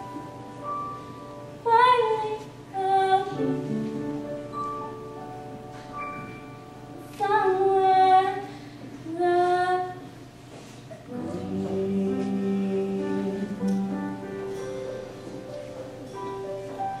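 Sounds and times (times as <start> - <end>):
soft keyboard accompaniment: 0.0 - 17.0
woman singing: 1.6 - 3.9, 7.1 - 10.2, 11.1 - 14.2.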